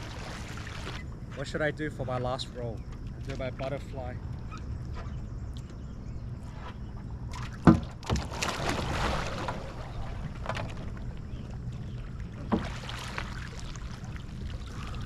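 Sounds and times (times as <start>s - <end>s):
rushing water: 0.0s - 1.0s, 12.2s - 15.0s
water splashing: 0.0s - 1.1s, 7.3s - 15.0s.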